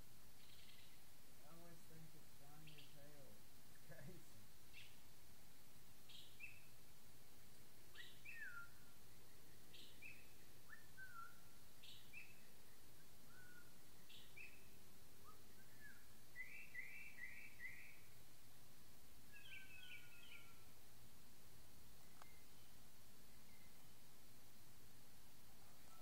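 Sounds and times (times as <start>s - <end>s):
steady background hiss: 0.0s - 26.0s
falling whistled bird notes: 8.0s - 8.9s, 9.8s - 12.5s, 13.3s - 18.0s, 19.3s - 20.6s.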